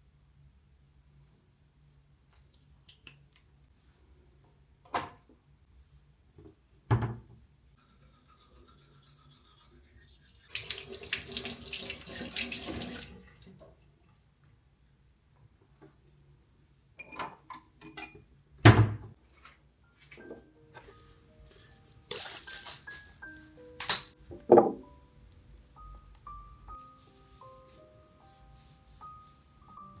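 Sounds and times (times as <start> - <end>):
tap running water into sink: 10.5 - 13.2.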